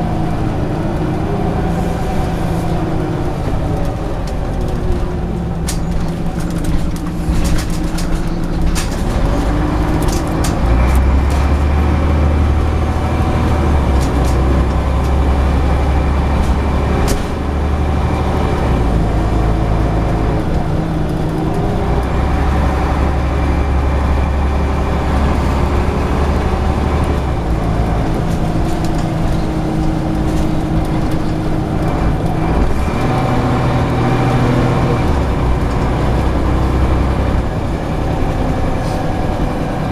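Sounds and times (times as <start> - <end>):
bus diesel engine droning: 0.0 - 39.9
sharp clicks and rattles: 3.3 - 17.8.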